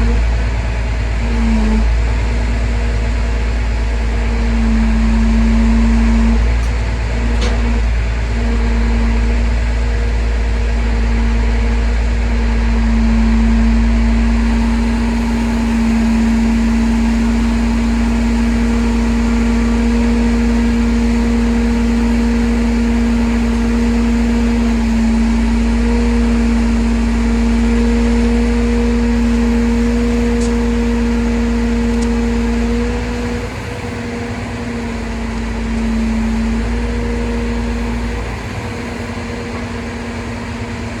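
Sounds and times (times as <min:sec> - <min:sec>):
truck engine droning whine: 0:00.0 - 0:41.0.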